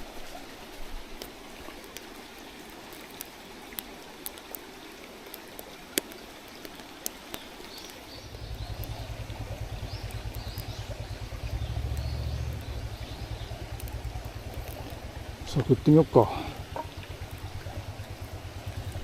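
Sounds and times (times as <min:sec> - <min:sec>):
campfire crackling and popping: 0:00.0 - 0:19.0
stream flowing: 0:00.0 - 0:19.0
faint birdsong: 0:05.6 - 0:19.0
passing vehicle engine rumble: 0:08.2 - 0:19.0.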